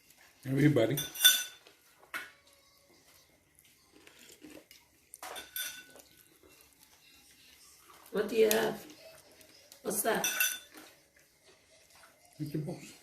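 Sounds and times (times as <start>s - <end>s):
cutlery clinking on plates: 0.9s - 2.3s, 5.2s - 6.1s, 10.1s - 11.0s.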